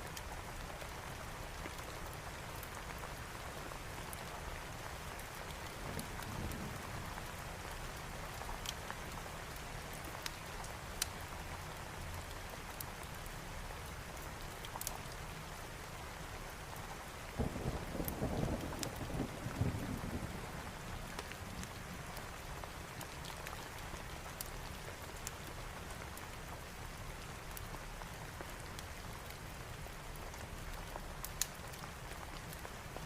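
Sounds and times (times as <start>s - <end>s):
heavy rain falling: 0.5s - 33.0s
sharp ticks and snaps: 11.0s - 11.2s, 14.5s - 15.2s, 31.2s - 32.7s.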